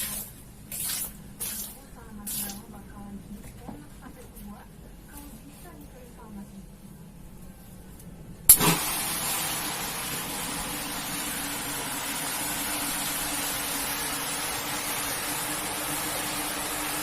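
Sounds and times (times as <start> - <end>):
water pump motor running: 8.5 - 17.0
water spraying onto carpet: 8.5 - 17.0.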